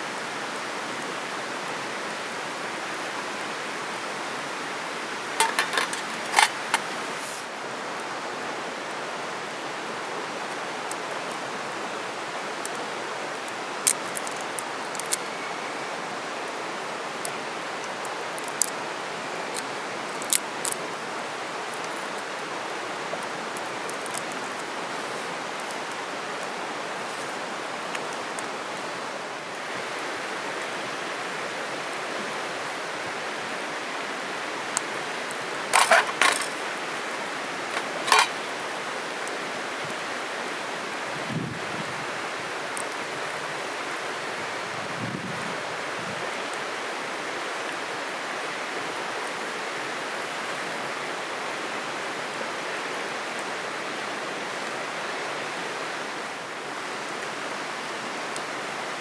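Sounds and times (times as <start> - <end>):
campfire crackling: 0.0 - 9.8, 10.4 - 30.9, 32.9 - 41.1, 42.3 - 43.6, 49.1 - 52.1, 55.5 - 58.9
steady rushing hiss: 0.0 - 45.0.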